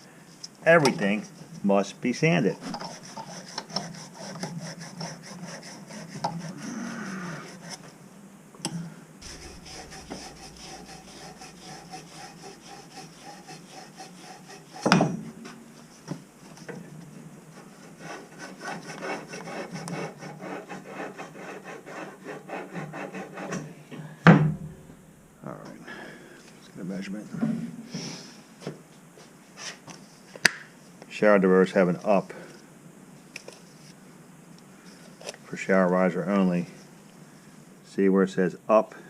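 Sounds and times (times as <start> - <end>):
sanding metal pipe: 2.6 - 6.7, 9.2 - 15.0, 17.5 - 23.5
sharp knock: 9.2 - 12.9.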